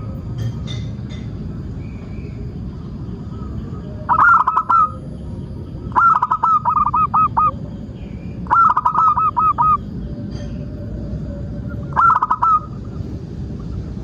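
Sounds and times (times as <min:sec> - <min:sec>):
steady low rumble: 0:00.0 - 0:14.0
dove cooing: 0:03.4 - 0:05.1, 0:05.9 - 0:07.8, 0:08.4 - 0:09.9, 0:11.7 - 0:13.0.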